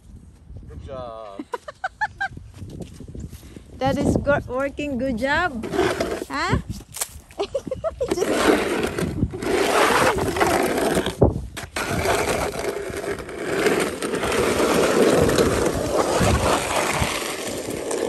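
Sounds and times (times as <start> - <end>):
snow shovel scraping pavement: 5.2 - 6.5, 7.8 - 18.0.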